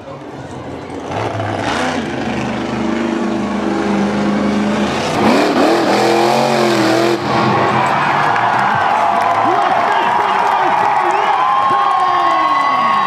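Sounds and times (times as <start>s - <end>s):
truck engine revving: 1.0s - 11.0s.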